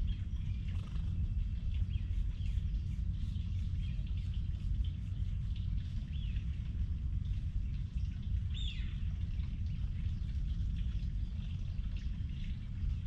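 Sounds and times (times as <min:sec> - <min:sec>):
small birds chirping: 0:00.0 - 0:06.9
steady low rumble: 0:00.0 - 0:13.0.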